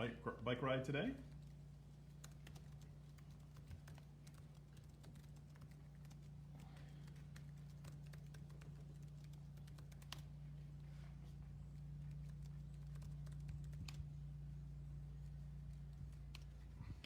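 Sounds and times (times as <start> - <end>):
steady low hum: 0.0 - 17.0
faint irregular clicks: 1.2 - 10.3, 12.0 - 14.2, 15.3 - 17.0.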